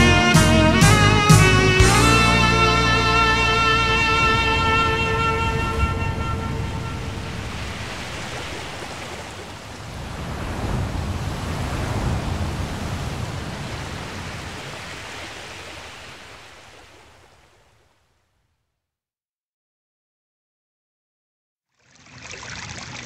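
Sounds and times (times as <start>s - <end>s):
ocean surf rushing: 0.0s - 17.4s.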